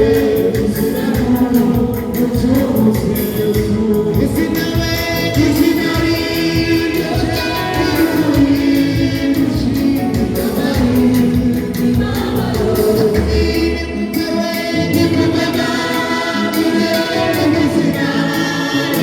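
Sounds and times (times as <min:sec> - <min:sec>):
choir singing gospel: 0:00.0 - 0:19.0
instrumental backing with beat: 0:00.0 - 0:19.0.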